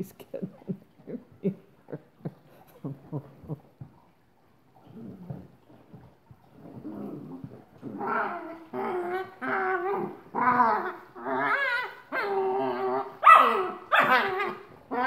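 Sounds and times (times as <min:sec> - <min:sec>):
puppy whining: 0:07.4 - 0:15.0.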